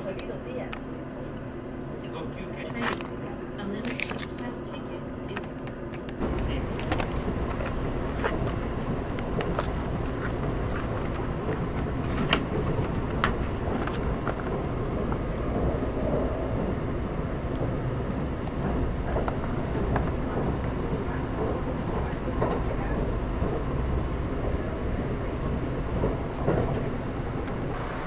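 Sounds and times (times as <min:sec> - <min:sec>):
train rumble from inside carriage: 0:00.0 - 0:28.0.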